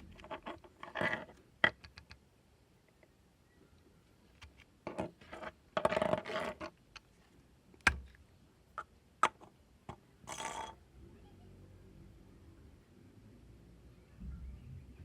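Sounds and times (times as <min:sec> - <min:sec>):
sharp knock: 0:07.9 - 0:08.1.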